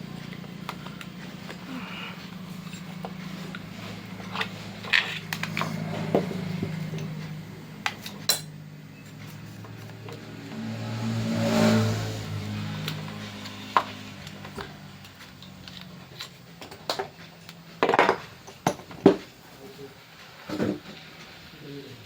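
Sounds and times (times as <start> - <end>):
steady low hum: 0.0 - 20.1
mechanical hum: 0.0 - 22.0
metal tools clinking: 0.7 - 6.2.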